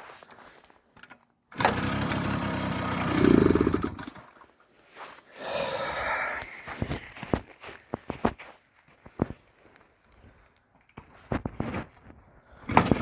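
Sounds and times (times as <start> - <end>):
moped engine starting: 1.5 - 4.2, 12.7 - 13.0.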